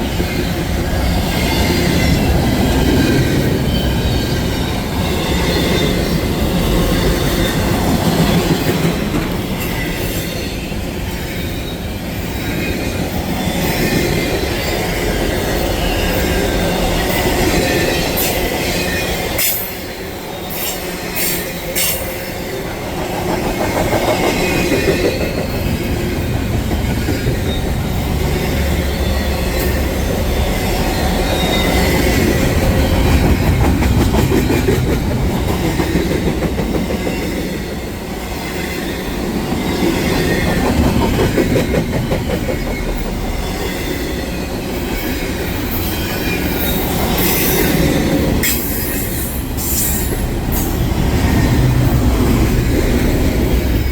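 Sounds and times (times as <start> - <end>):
train wheels rumbling: 0.0 - 53.9
wheels clacking over rail joints: 20.5 - 37.8.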